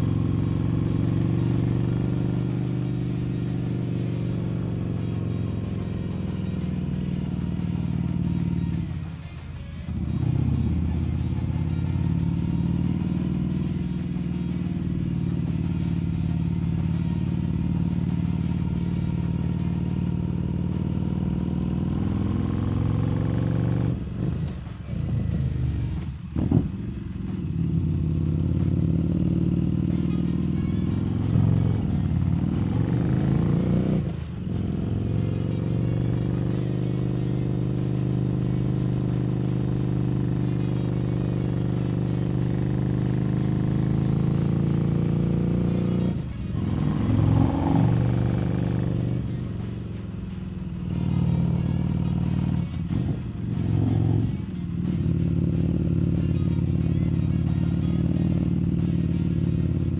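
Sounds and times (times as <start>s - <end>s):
motorcycle engine running: 0.0s - 59.9s
engine revving after gear change: 19.5s - 39.4s, 41.5s - 49.9s.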